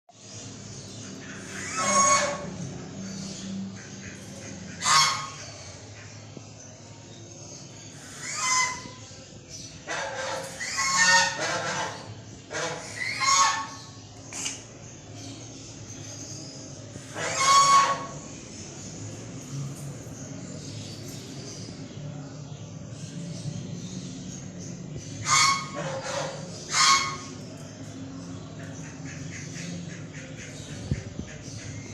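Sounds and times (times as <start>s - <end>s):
large bird calling loudly: 1.2s - 2.7s, 3.8s - 5.7s, 8.0s - 14.0s, 17.0s - 18.3s, 25.1s - 27.6s.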